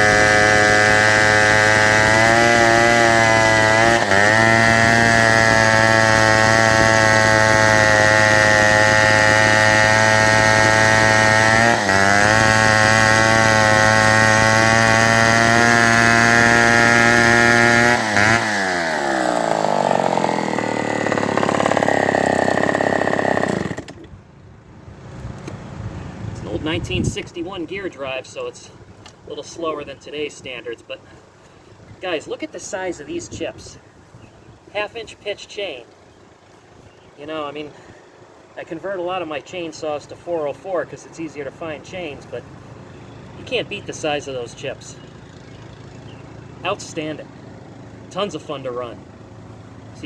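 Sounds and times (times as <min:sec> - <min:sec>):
loud chainsaw running: 0:00.0 - 0:24.1.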